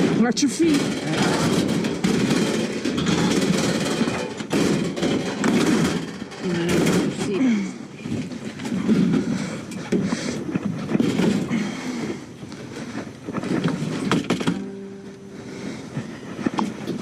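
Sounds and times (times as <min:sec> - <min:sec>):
sharp knocks: 0:00.0 - 0:07.4.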